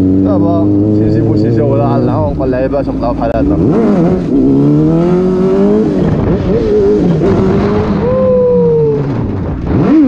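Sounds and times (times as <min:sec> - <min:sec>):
motorcycle engine revving: 0:00.0 - 0:10.0
wind noise: 0:03.5 - 0:10.0.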